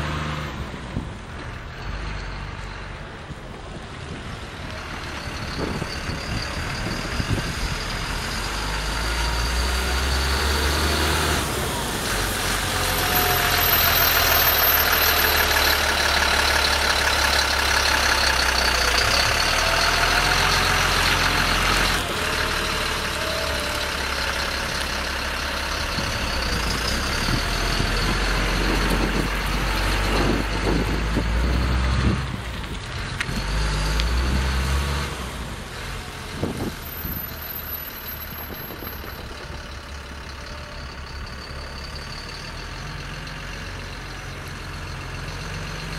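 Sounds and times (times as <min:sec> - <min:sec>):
truck engine idling: 0:11.0 - 0:34.2, 0:35.2 - 0:45.9.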